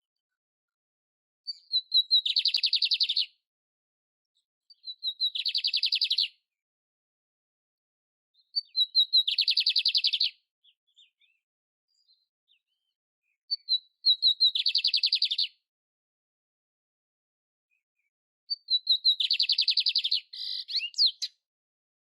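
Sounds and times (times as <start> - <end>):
canary singing: 1.5 - 3.3, 4.7 - 6.4, 8.4 - 11.4, 13.5 - 15.5, 18.5 - 21.4.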